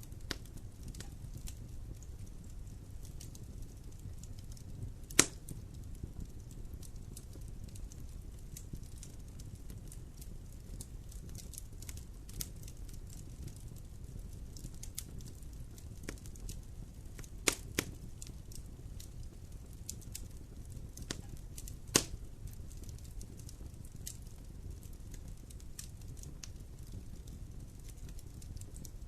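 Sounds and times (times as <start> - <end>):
fire crackling and popping: 0.0 - 29.0
fire rumbling in a fireplace: 0.0 - 29.0.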